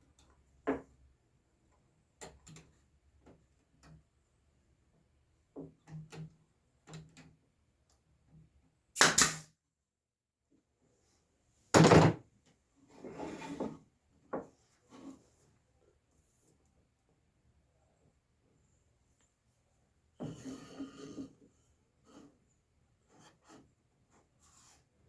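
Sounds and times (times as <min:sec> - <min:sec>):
brad nailer shots: 0:09.0 - 0:09.4.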